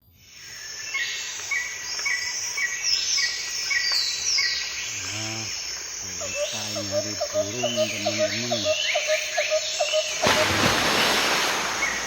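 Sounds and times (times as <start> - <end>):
shrill insect chorus: 0.3 - 12.0
bird chirping: 0.9 - 10.4.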